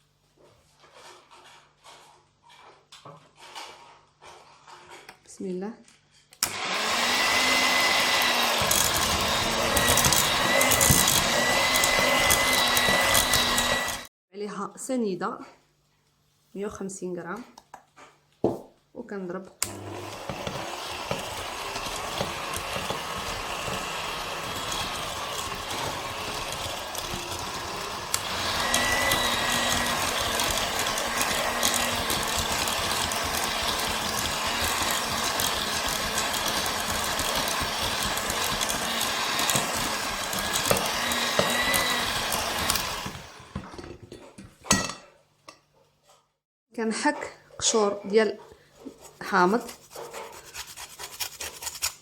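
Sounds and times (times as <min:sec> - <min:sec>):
electric hand mixer beating: 0:06.4 - 0:14.1, 0:19.6 - 0:43.7.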